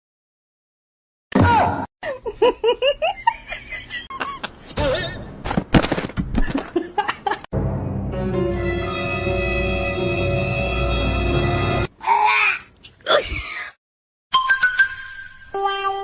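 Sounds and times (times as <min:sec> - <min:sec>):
music with held notes: 0:07.6 - 0:11.9.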